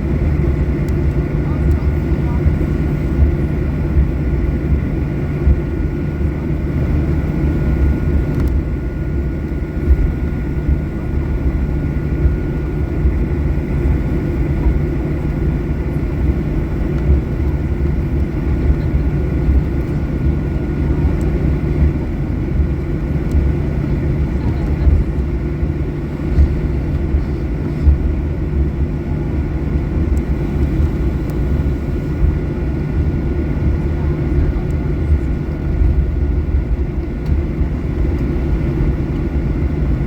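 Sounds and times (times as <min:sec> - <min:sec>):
aircraft cabin rumble and airflow: 0:00.0 - 0:40.0.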